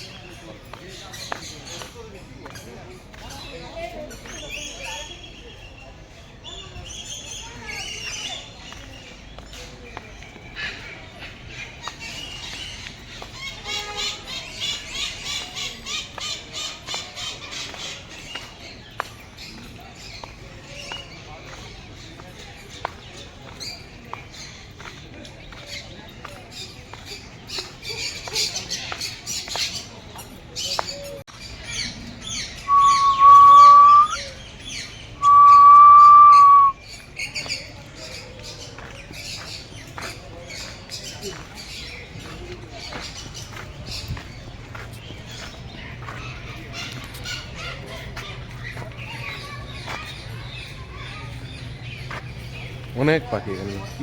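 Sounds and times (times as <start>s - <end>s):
birds calling in high notes: 32.4s - 37.0s
long steady whistles: 32.6s - 34.2s, 35.2s - 36.8s.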